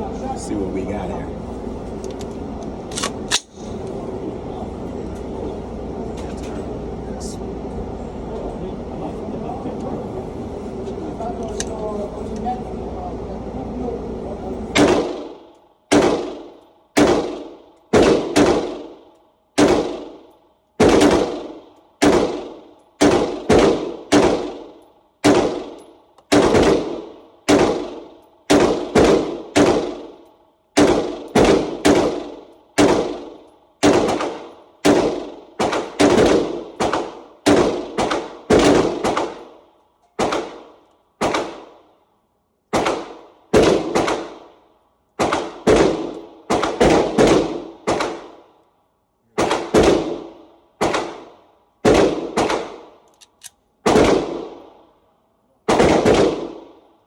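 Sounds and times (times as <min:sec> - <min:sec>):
rifle gunshots with echo: 0:14.7 - 0:42.0, 0:42.7 - 0:48.6, 0:49.4 - 0:53.1, 0:53.8 - 0:55.0, 0:55.6 - 0:57.0.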